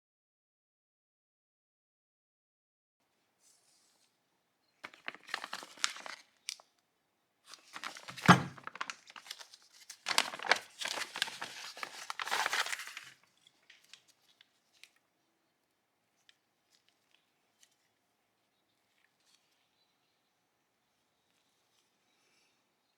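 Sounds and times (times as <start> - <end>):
material rustling and tearing: 4.9 - 6.6, 7.5 - 15.0.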